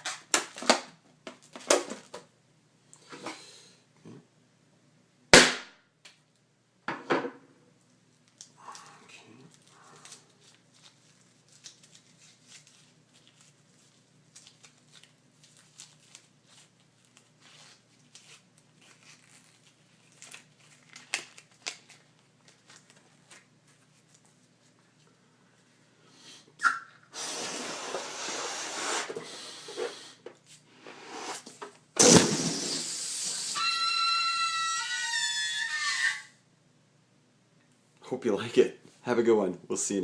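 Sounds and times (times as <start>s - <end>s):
breathy blowing into balloon: 27.1s - 30.2s, 30.8s - 33.6s
rush of air from balloon: 27.1s - 30.2s, 30.8s - 33.6s.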